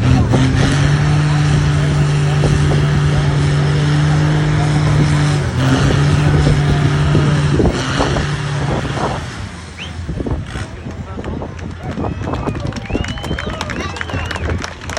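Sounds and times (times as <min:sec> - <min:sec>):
car engine running: 0:00.0 - 0:14.9.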